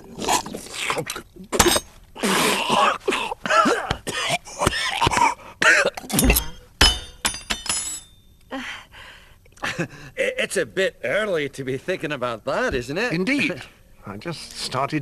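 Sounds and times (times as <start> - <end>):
person coughing and spluttering: 0.4 - 6.4
glass and tableware clinking: 6.0 - 8.2.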